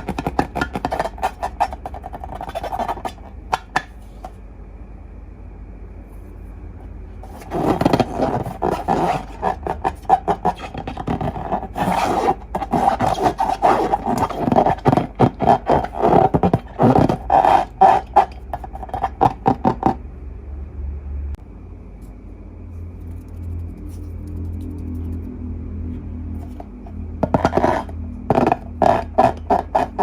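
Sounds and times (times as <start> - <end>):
rubber balloons squeaking: 0.0 - 3.7, 7.2 - 19.9, 27.2 - 30.0.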